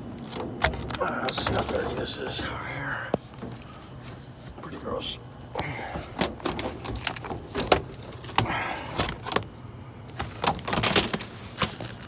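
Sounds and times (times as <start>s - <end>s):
sharp clicks and knocks: 0.1s - 2.2s
scraping rustle: 0.4s - 4.7s, 10.1s - 12.0s.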